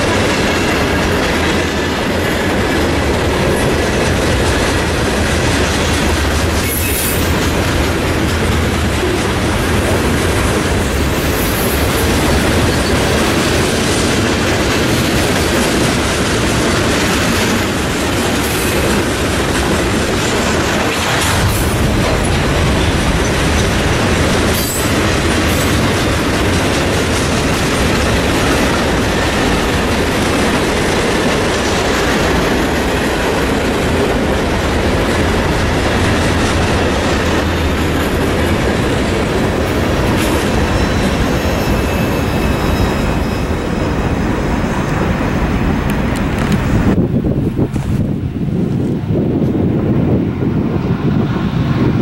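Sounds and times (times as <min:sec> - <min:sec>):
steel wheels rolling on rail: 0:00.0 - 0:52.0
faint high wheel squeal: 0:40.7 - 0:44.0.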